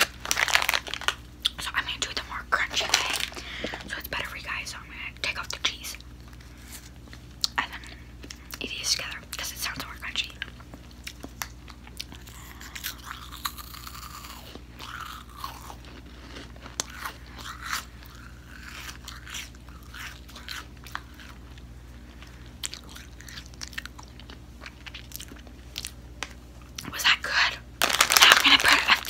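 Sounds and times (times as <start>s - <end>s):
person chewing crunchy snack: 0.0s - 1.6s, 10.4s - 26.0s, 27.8s - 29.0s.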